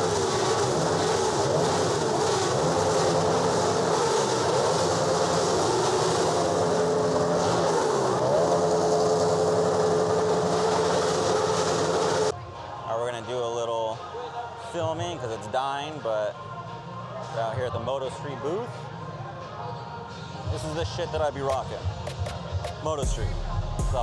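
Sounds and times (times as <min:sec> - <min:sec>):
motorbike engines revving: 0:00.0 - 0:12.3.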